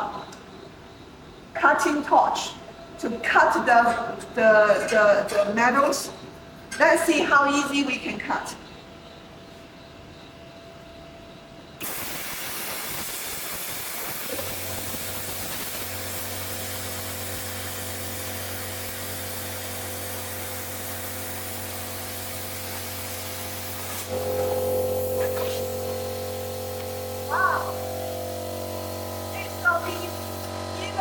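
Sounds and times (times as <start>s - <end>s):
plasma cutter air hiss: 11.8s - 31.0s
low electric hum: 12.9s - 31.0s.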